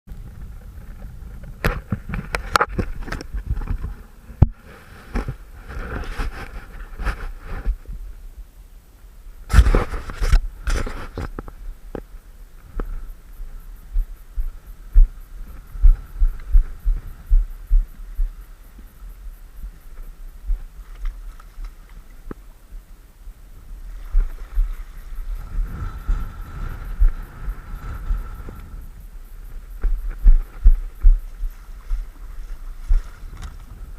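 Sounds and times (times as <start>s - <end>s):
low thumps and knocks: 13.9s - 18.4s, 29.5s - 32.1s.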